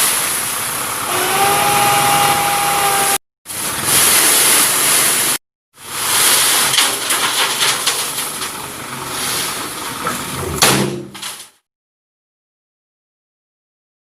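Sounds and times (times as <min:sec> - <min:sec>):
truck hissing rush: 0:00.0 - 0:03.2.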